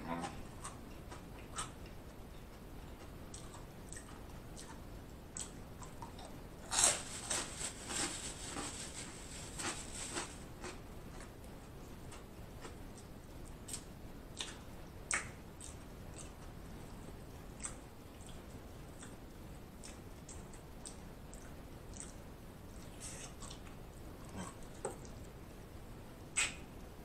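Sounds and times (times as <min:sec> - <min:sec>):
person chewing food: 0:00.1 - 0:19.2, 0:19.8 - 0:25.3
wet mouth clicks and smacks: 0:14.4 - 0:16.3, 0:26.4 - 0:26.6.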